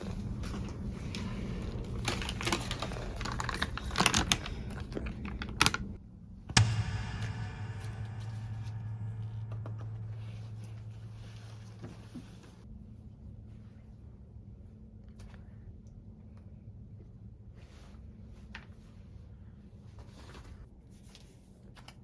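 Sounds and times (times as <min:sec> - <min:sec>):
sharp knock with ringing: 0:06.6 - 0:12.0
steady low hum: 0:06.6 - 0:12.7.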